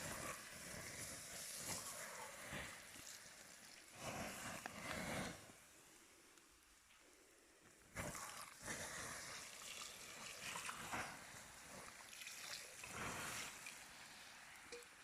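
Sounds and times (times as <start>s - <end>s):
water splashing and sloshing: 8.0s - 13.9s.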